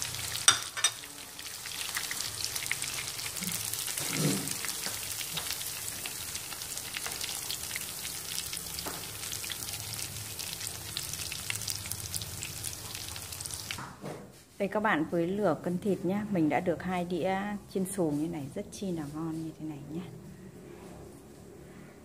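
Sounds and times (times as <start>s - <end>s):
cutlets sizzling in hot oil: 0.0s - 13.8s.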